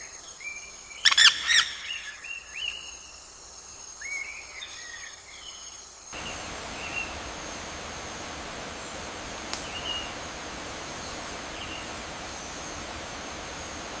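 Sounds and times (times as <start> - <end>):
steady hiss: 6.0 - 14.0
sharp click: 9.5 - 9.7.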